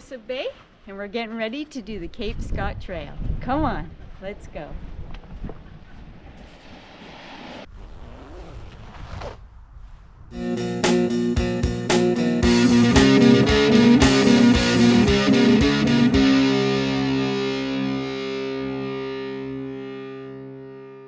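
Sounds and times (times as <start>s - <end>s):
sharp regular beats: 10.4s - 18.2s
distorted electric guitar: 10.4s - 21.0s.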